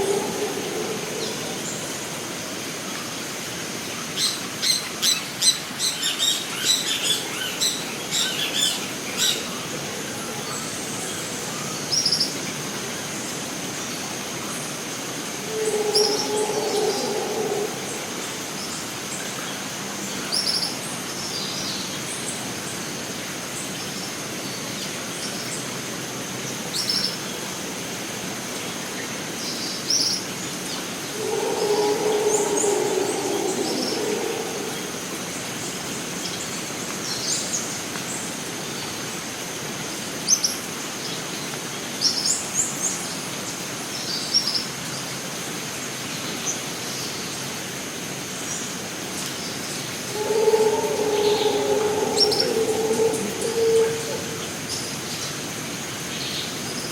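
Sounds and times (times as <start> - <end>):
low drawn-out animal call: 0.0 - 2.3, 15.3 - 18.8, 31.0 - 35.6, 49.8 - 55.2
high insect drone: 0.0 - 21.0, 30.4 - 36.5, 48.5 - 56.2
background hiss: 0.0 - 56.9.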